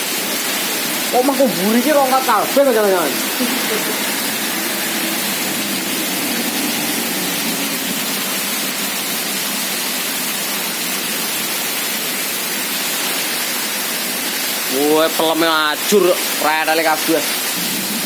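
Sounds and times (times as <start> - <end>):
heavy rain: 0.0 - 18.0
strong storm wind: 17.6 - 18.0.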